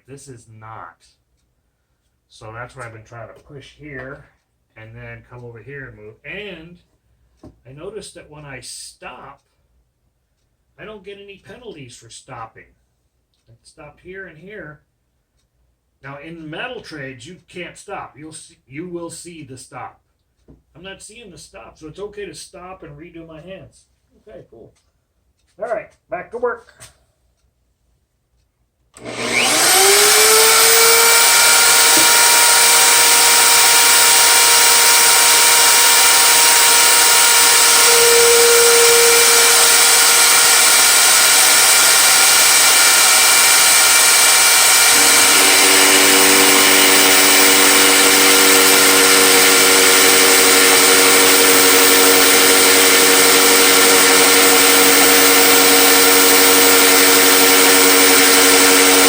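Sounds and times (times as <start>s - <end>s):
electric router cutting wood: 29.0s - 59.0s.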